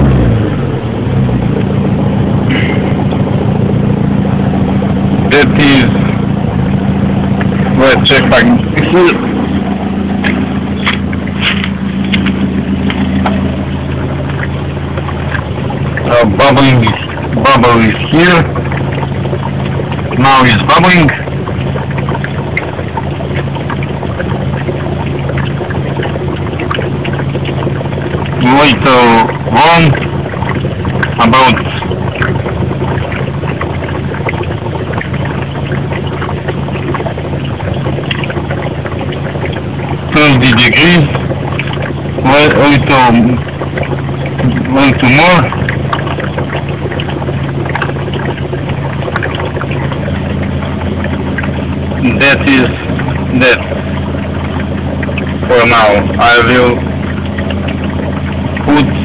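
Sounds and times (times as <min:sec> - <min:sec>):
car engine idling: 0:00.0 - 0:59.0
electrolyser cell bubbling: 0:00.0 - 0:59.0.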